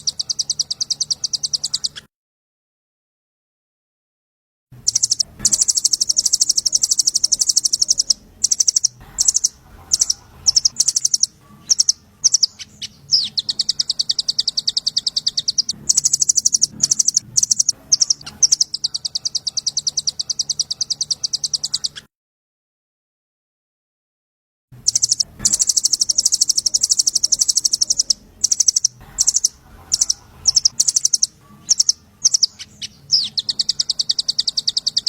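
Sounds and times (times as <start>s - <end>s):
songbird rapid trilling: 4.9s - 22.0s, 24.9s - 35.0s.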